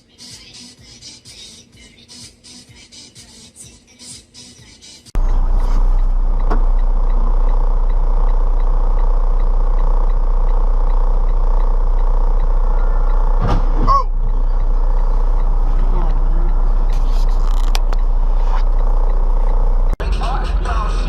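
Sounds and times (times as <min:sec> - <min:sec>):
car road and engine noise: 0:05.2 - 0:21.0
faint regular ticking: 0:06.0 - 0:13.4, 0:14.0 - 0:20.0.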